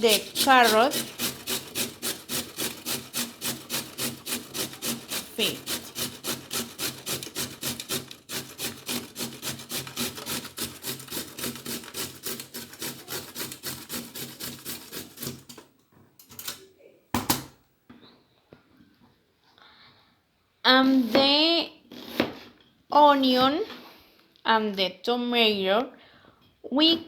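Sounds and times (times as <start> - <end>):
carrot being scraped: 0.0 - 15.7.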